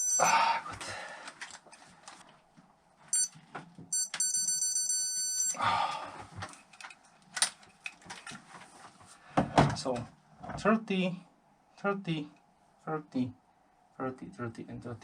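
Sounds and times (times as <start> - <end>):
electronic beeps: 0.0 - 0.3, 3.1 - 5.6.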